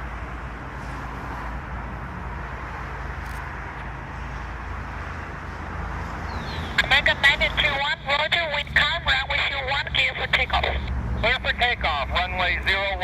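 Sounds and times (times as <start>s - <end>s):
jet engines idling: 6.4s - 13.0s.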